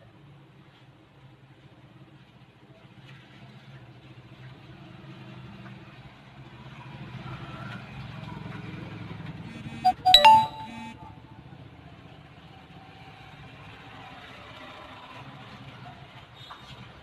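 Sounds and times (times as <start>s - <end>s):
two-part electronic tone: 9.9s - 11.1s.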